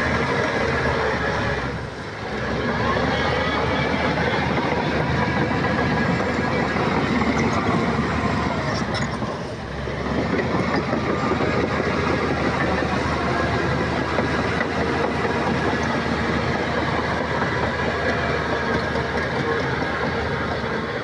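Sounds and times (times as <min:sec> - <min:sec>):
bulldozer diesel engine running: 0:00.0 - 0:21.0
steel tracks clattering: 0:01.9 - 0:21.0.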